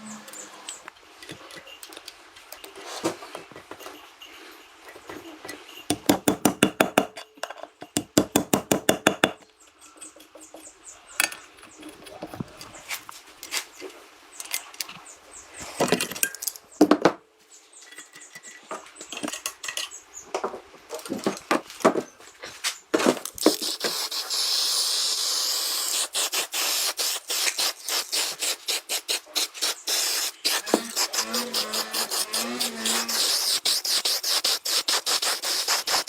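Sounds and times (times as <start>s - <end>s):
steady high hiss: 23.4s - 36.0s
tool clicks and scrapes: 29.6s - 36.0s.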